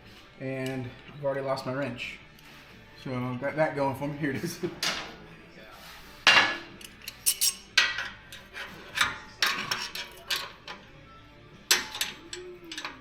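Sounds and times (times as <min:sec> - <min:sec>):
wrench clinking on metal clamp: 0:06.4 - 0:10.8.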